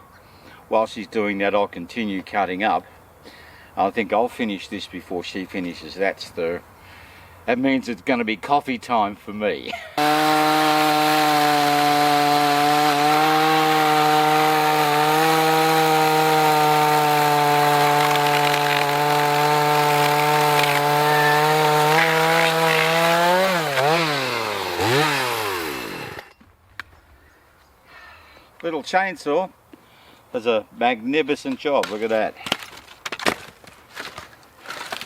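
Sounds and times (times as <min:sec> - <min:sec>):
chainsaw cutting log: 0:10.0 - 0:26.3, 0:31.8 - 0:35.0.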